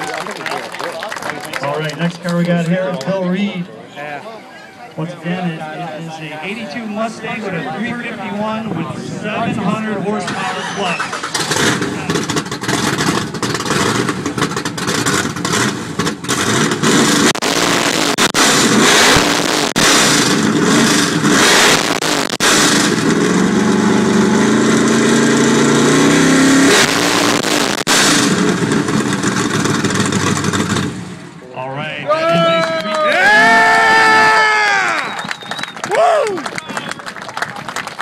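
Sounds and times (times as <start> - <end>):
car engine revving hard: 10.3 - 31.2.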